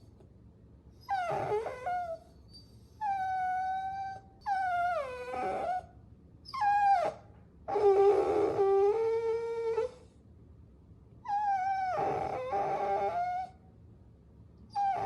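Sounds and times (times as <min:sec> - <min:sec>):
puppy whining: 0:01.0 - 0:10.2, 0:11.2 - 0:13.6, 0:14.7 - 0:15.0.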